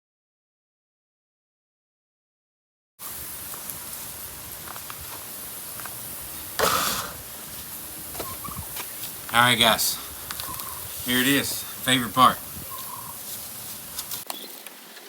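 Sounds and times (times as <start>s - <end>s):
steady background hiss: 3.0s - 15.0s.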